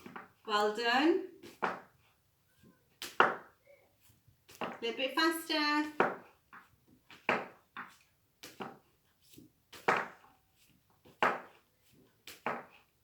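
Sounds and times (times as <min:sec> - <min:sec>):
woman saying phonics sounds: 0:00.5 - 0:01.4, 0:04.8 - 0:06.0.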